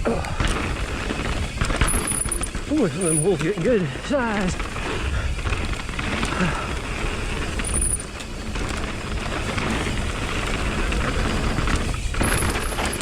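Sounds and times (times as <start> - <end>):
bike rattling: 0.0 - 13.0
tyres rolling over dirt: 0.0 - 13.0
high-pitched squeaks: 1.8 - 3.6.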